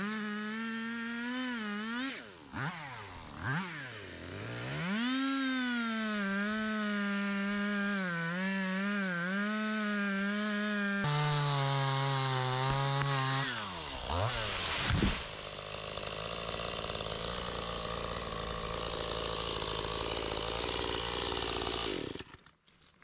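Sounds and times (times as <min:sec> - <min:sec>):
chainsaw revving and cutting wood: 0:00.0 - 0:23.0.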